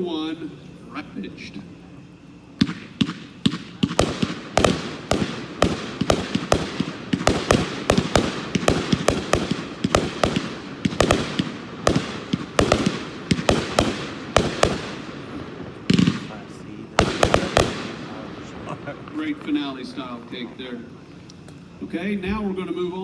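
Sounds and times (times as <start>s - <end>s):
firework cake sharp bangs: 2.6s - 20.4s.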